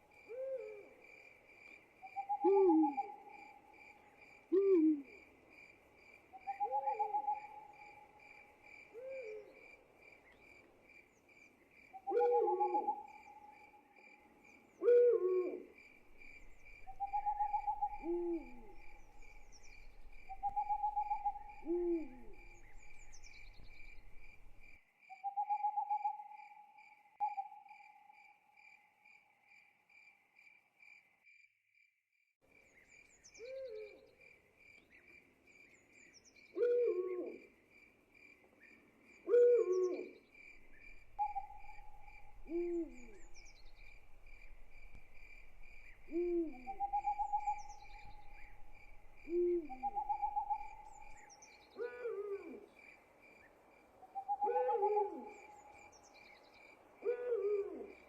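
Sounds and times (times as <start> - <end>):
crickets chirping: 0.0 - 31.9, 32.5 - 58.0
owl hooting: 0.3 - 0.9, 2.0 - 3.6, 4.5 - 5.2, 6.4 - 8.1, 9.0 - 9.5, 12.0 - 13.6, 14.8 - 24.6, 33.4 - 34.1, 36.6 - 37.4, 39.3 - 52.7, 54.1 - 55.9, 57.0 - 58.0.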